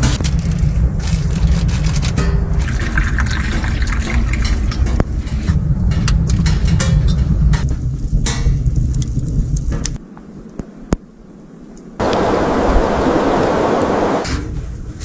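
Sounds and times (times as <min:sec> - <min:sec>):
loud low rumble: 0:12.0 - 0:14.3.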